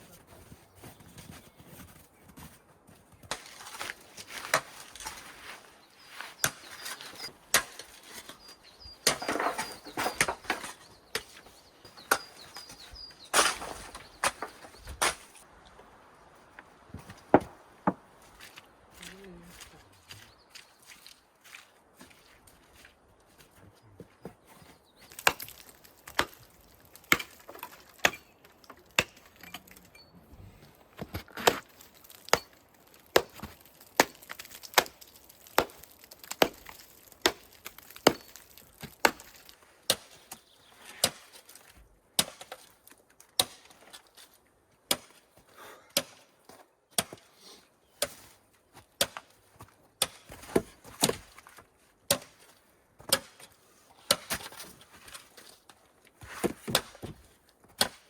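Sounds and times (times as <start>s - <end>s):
chopping wood: 25.1s - 29.8s, 31.0s - 40.2s, 42.2s - 42.7s, 44.9s - 45.2s, 45.9s - 46.3s, 46.9s - 47.3s, 49.0s - 49.3s, 50.0s - 51.4s, 52.1s - 52.4s, 53.0s - 54.6s, 56.3s - 58.0s.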